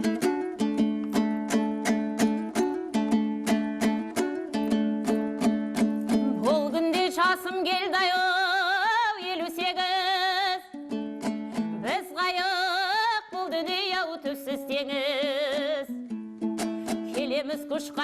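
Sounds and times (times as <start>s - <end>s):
dombra strumming: 0.0s - 8.1s, 10.7s - 18.0s
solo voice singing with vibrato: 6.2s - 10.8s, 11.8s - 16.0s, 17.1s - 18.0s.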